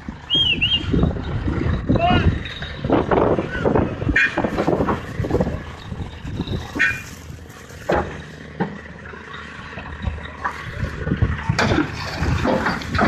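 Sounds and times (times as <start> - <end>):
heavy machine engine running: 0.0 - 13.0
sharp metal knocks and clanks: 4.1 - 7.0, 11.4 - 13.0.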